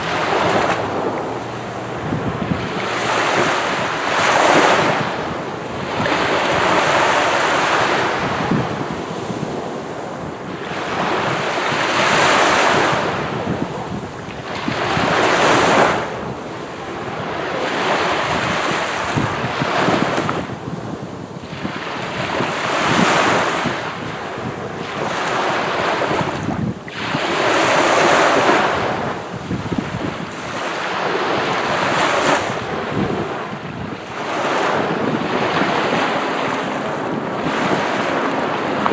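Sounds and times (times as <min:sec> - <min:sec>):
waves breaking on beach: 0:00.0 - 0:38.9.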